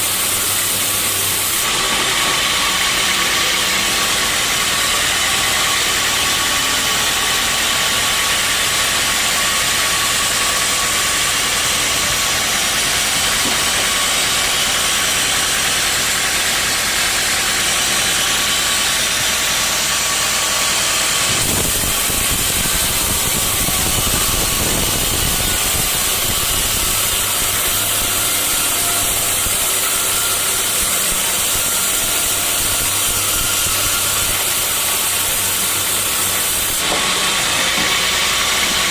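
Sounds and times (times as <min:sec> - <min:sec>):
sawmill saw cutting logs: 0:00.0 - 0:38.9.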